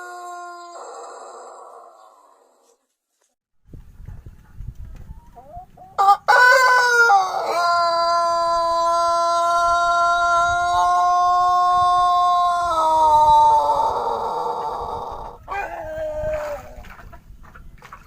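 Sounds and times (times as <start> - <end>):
rooster crowing: 0.0 - 2.6, 6.0 - 16.8.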